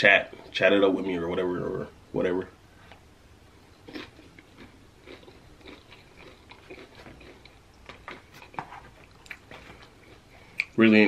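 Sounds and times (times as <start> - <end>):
crunchy chewing: 3.8 - 10.8.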